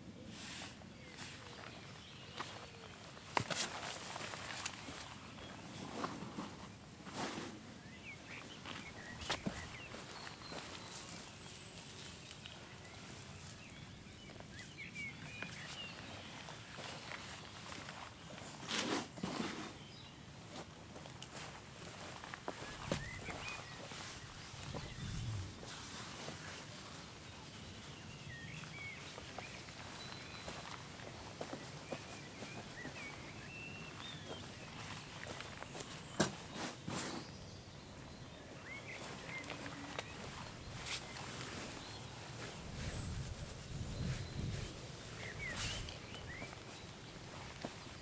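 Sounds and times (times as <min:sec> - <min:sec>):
clicks and rustling among plants: 0:00.4 - 0:48.0
small birds chirping: 0:00.9 - 0:18.9, 0:19.6 - 0:48.0.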